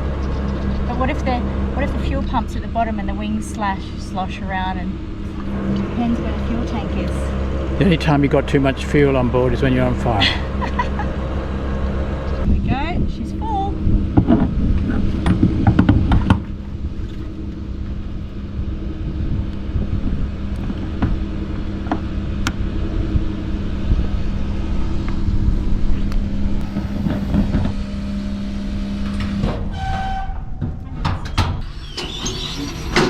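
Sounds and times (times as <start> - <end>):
fuel pump motor humming: 0.0 - 30.8.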